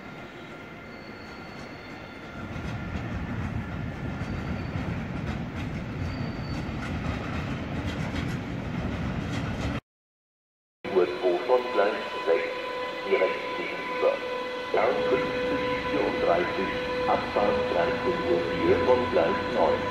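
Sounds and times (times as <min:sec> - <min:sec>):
faint high-pitched squeals: 0:00.0 - 0:02.4, 0:06.0 - 0:06.7
train wheels rumbling on rails: 0:00.8 - 0:09.8, 0:14.1 - 0:19.9.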